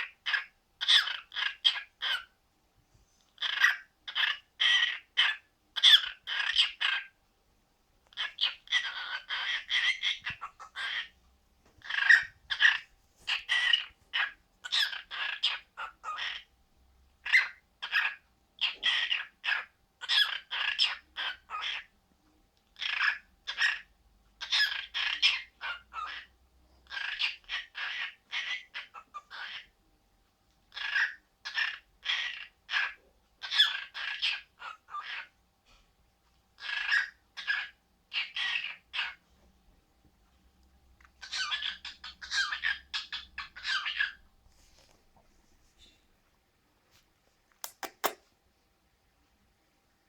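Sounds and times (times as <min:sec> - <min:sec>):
parrot squawking and chirping: 0:00.0 - 0:02.4, 0:03.3 - 0:07.2, 0:08.1 - 0:11.2, 0:11.8 - 0:16.5, 0:17.2 - 0:21.9, 0:22.8 - 0:29.8, 0:30.7 - 0:35.4, 0:36.6 - 0:39.2, 0:41.0 - 0:44.3, 0:47.6 - 0:48.3.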